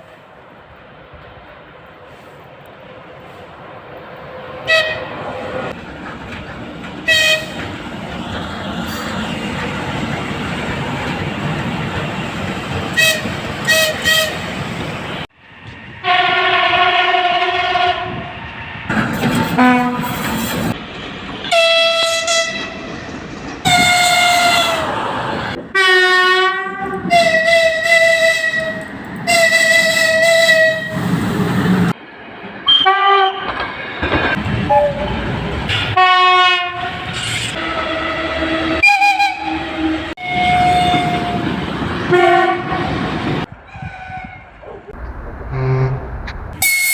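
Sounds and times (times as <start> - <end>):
train rolling on rails: 0.0 - 46.9
multi-tone locomotive horn blasts: 4.6 - 5.2, 7.0 - 7.7, 12.9 - 14.5, 16.0 - 18.3, 19.5 - 20.2, 21.5 - 22.8, 23.7 - 24.9, 25.7 - 31.0, 32.7 - 33.6, 34.7 - 35.1, 35.9 - 41.5, 42.1 - 43.0, 43.7 - 44.5, 46.6 - 46.9.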